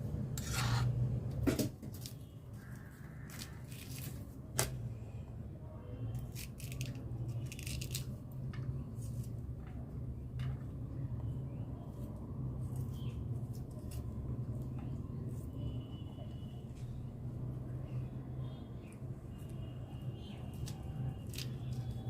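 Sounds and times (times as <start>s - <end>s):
knife cutting and scraping: 0.3s - 1.0s.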